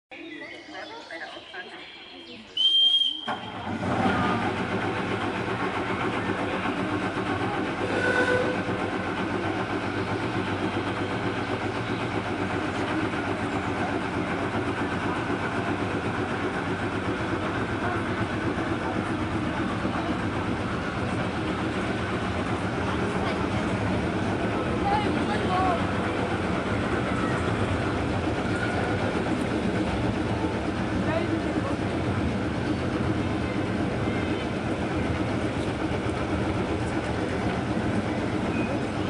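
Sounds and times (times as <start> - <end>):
train cars noise: 0.1 - 39.0
train engine running: 0.2 - 39.0
brief tone: 38.5 - 39.0.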